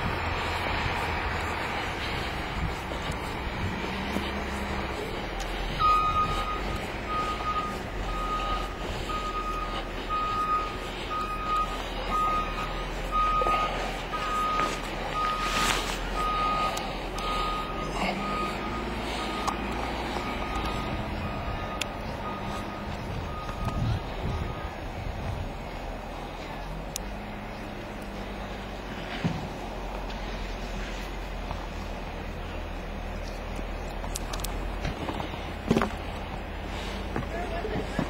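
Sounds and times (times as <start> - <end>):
engine rumbling: 0.0 - 38.0
reversing alarm beeping: 5.7 - 24.8.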